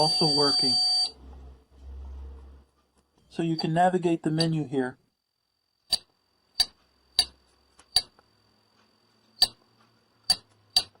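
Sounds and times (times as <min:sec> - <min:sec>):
faint high-pitched tone: 0:00.0 - 0:01.2.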